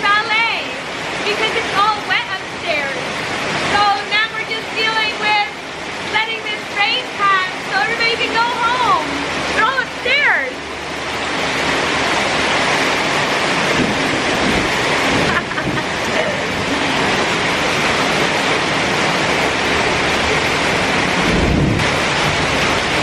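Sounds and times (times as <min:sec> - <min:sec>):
heavy rain pouring: 0:00.0 - 0:23.0
low rumble: 0:08.0 - 0:23.0.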